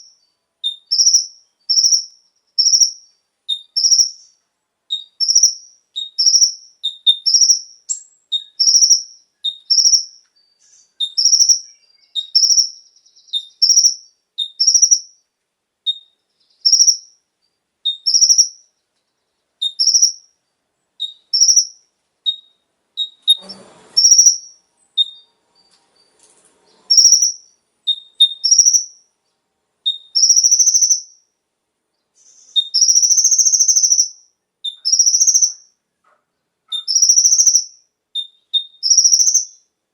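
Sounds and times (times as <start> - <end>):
sunbird high two-part calls: 0.0 - 15.2, 17.9 - 18.7, 19.6 - 20.3, 21.0 - 25.3, 26.7 - 29.1, 29.9 - 31.2, 32.1 - 35.8, 36.7 - 39.7.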